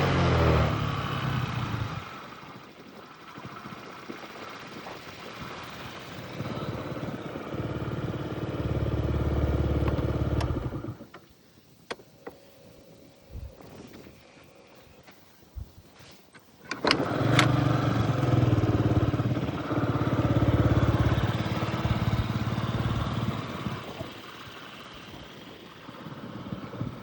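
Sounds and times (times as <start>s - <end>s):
scooter engine revving: 0.0s - 11.1s, 16.7s - 27.0s.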